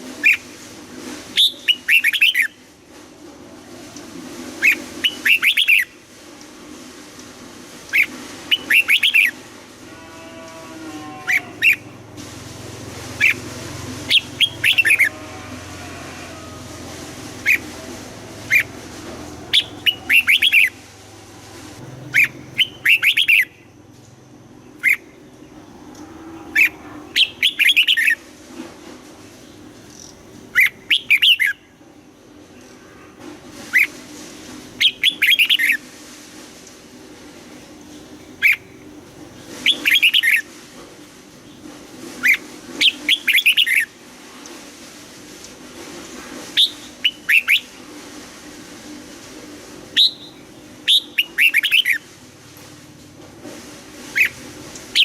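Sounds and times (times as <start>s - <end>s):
bird singing whistled notes: 1.4s - 2.5s, 22.1s - 23.6s, 50.0s - 52.0s.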